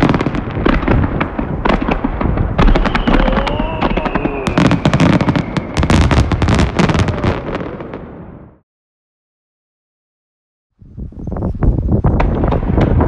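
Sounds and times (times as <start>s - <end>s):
fireworks bangs and crackling: 0.0s - 8.6s, 11.8s - 13.0s
falling firework whistle: 2.6s - 7.8s.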